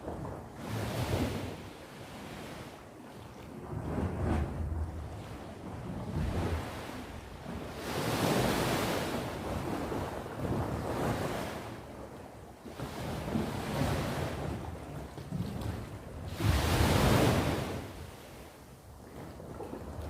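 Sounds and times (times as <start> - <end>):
wind rumble on microphone: 0.0 - 20.0
sea surf breaking on shore: 3.6 - 11.9, 16.2 - 18.4.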